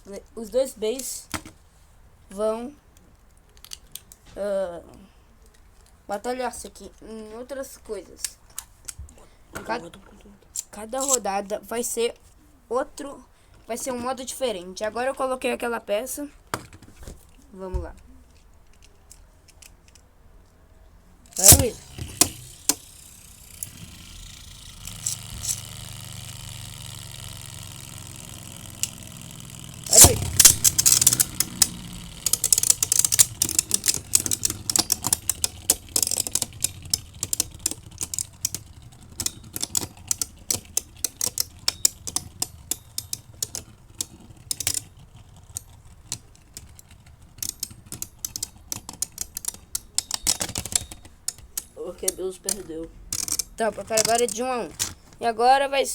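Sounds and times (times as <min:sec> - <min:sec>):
tops clicking and rattling: 0:21.2 - 0:55.3
spinning tops clashing: 0:21.4 - 0:43.6
spinning tops whirring: 0:21.4 - 0:54.4.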